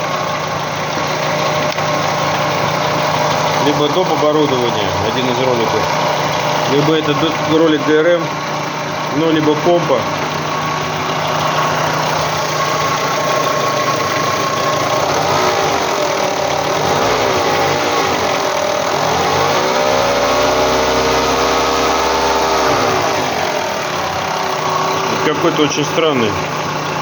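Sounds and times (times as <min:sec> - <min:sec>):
car engine idling: 0:00.0 - 0:27.0
engine knocking noise: 0:00.0 - 0:27.0
engine revving: 0:00.0 - 0:27.0.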